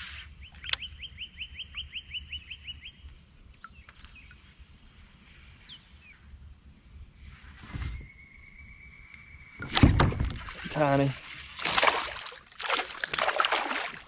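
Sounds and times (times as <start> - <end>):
songbird chirping: 0.0 - 6.4, 7.8 - 9.9.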